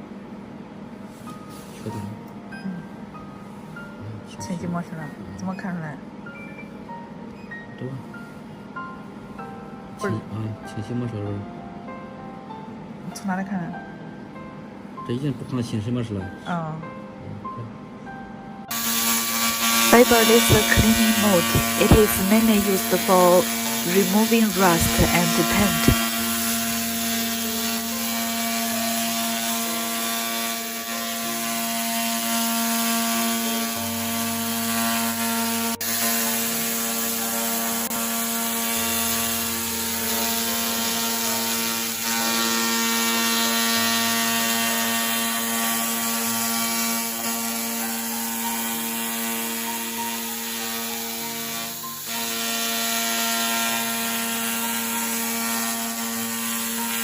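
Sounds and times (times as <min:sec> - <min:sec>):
laser cleaning head buzzing: 0:18.7 - 0:57.0.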